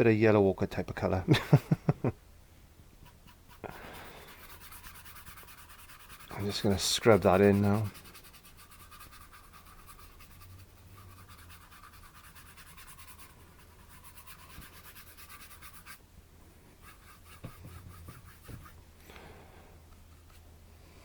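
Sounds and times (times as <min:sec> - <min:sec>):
paintbrush scrubbing on canvas: 0:03.0 - 0:16.0, 0:16.7 - 0:18.8.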